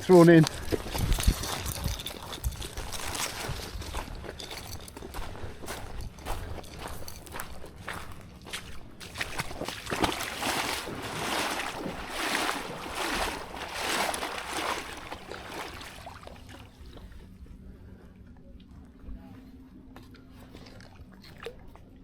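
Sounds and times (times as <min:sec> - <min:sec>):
paddle strokes splashing in water: 0:08.5 - 0:17.1.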